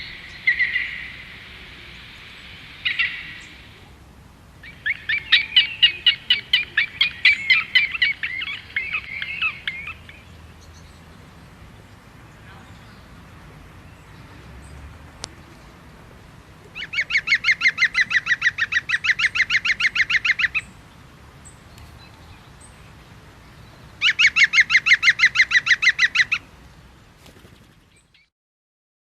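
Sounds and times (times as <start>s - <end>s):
bird calling rapid notes: 0.0s - 3.8s, 4.6s - 10.2s, 16.7s - 20.7s, 24.0s - 26.4s.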